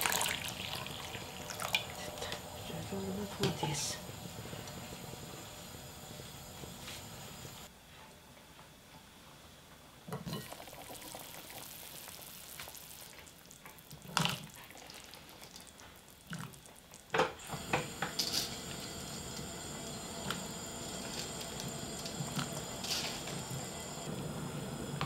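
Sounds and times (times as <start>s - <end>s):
water pouring into a pot: 0.0s - 2.4s, 10.3s - 16.6s, 17.4s - 24.8s.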